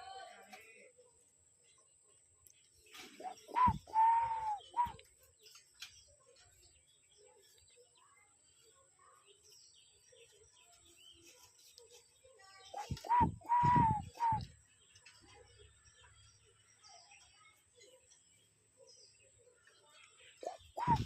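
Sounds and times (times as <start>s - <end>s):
dove cooing: 3.2s - 5.0s, 12.8s - 14.5s, 20.4s - 21.0s.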